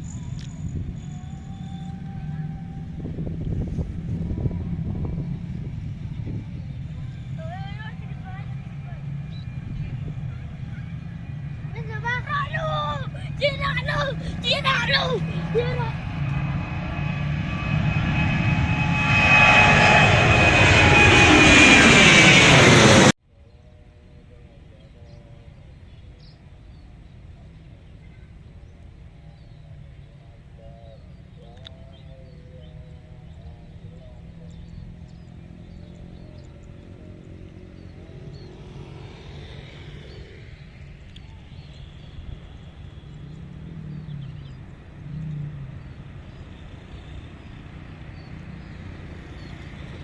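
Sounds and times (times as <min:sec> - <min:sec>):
birds chirping: 0:00.0 - 0:23.1, 0:24.7 - 0:50.0
jet engine roar and whine: 0:00.0 - 0:50.0.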